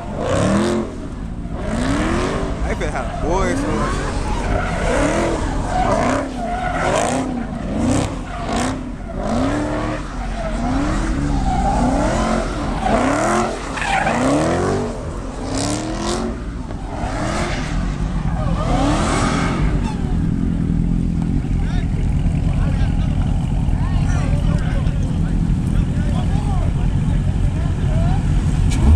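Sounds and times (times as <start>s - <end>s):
car engine revving: 0.0s - 28.9s.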